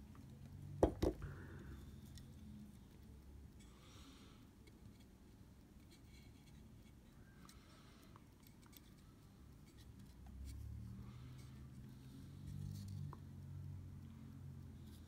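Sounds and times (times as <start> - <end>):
low steady hum: 0.0 - 15.0
faint scratching and clicks: 4.6 - 15.0.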